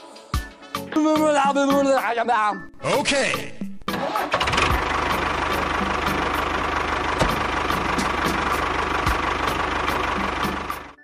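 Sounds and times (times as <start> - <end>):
tractor engine chugging: 4.0 - 11.0.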